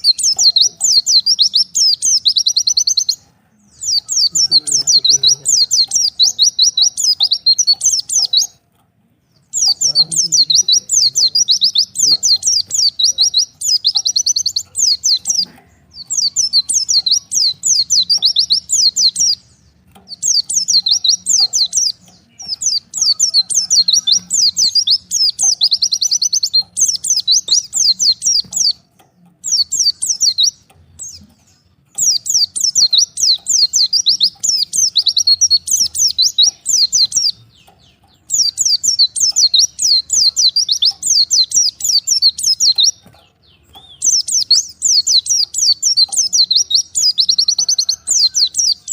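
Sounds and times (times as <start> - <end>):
bird twittering: 0.0 - 8.6, 9.3 - 48.9.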